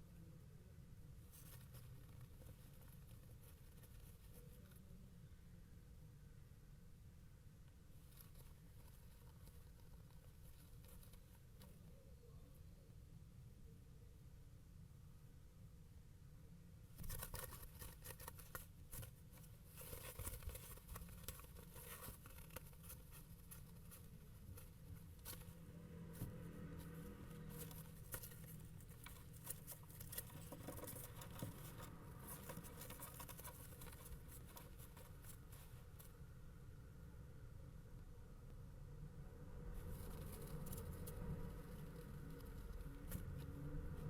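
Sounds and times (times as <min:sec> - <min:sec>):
scratching and rustling in nest box: 0:01.1 - 0:05.0, 0:07.7 - 0:12.0, 0:16.9 - 0:36.3, 0:39.6 - 0:44.0.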